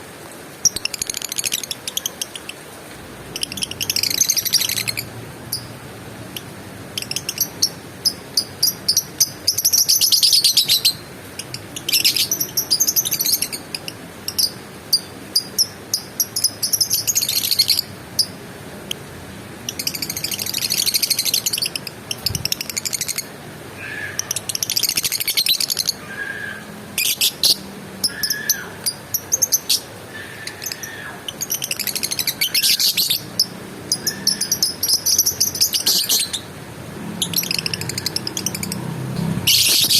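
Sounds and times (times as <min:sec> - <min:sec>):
bird chirps: 0:19.7 - 0:36.5, 0:37.2 - 0:39.9
bird buzzy trills: 0:37.1 - 0:39.9.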